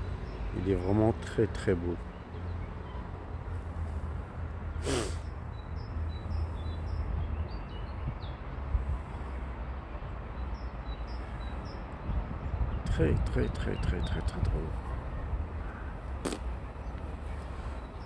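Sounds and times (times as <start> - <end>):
small birds chirping: 4.7 - 8.5, 10.3 - 18.0
brief breathy rush: 4.8 - 5.2.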